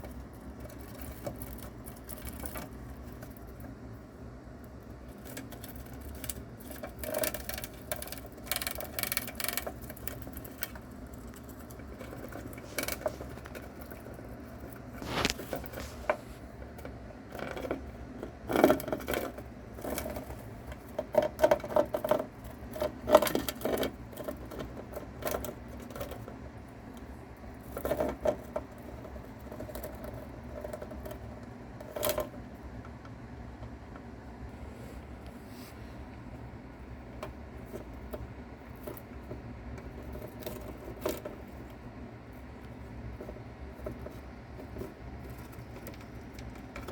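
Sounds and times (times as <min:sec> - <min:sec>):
mouse chewing insect crunching: 0:04.7 - 0:16.5.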